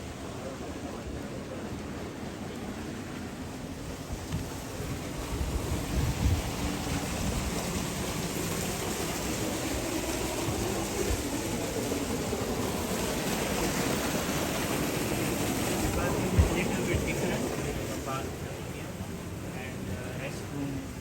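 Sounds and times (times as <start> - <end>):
rushing wind: 3.9 - 20.0
wind gusts thumping microphone: 4.0 - 12.8, 13.6 - 18.0.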